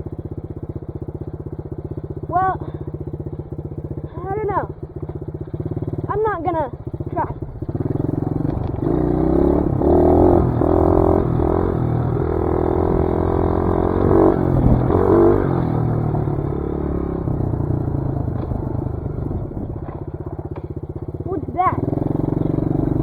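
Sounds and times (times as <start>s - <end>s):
dirt bike engine revving: 5.4s - 23.0s.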